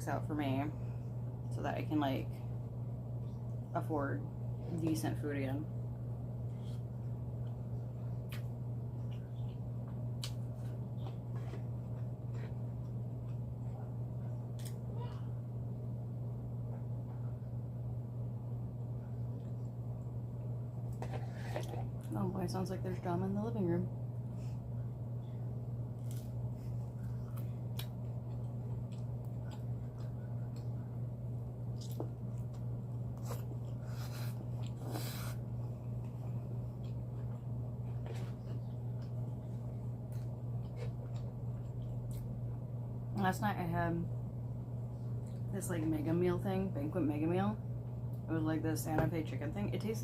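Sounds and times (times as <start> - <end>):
low hum: 0.0 - 50.0
person chewing food: 7.4 - 14.8, 25.9 - 30.9, 31.7 - 42.4.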